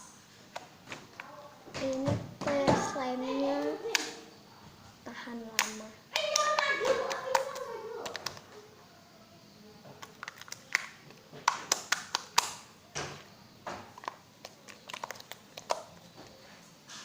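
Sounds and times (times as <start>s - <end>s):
slime popping and clicking: 10.0s - 12.7s, 13.9s - 16.0s.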